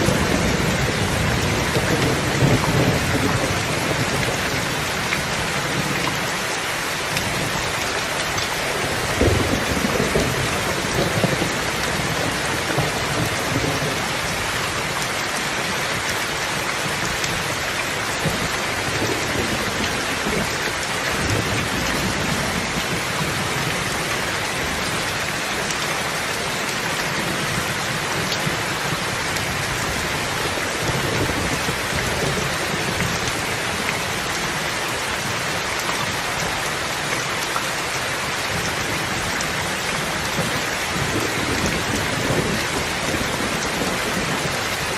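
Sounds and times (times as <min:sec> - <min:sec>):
steady rain hiss: 0:00.0 - 0:44.9.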